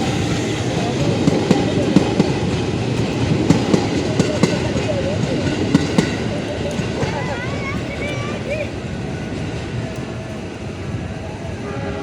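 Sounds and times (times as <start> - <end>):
steady train rumble: 0.0 - 12.0
train wheels clacking on rails: 0.0 - 12.0.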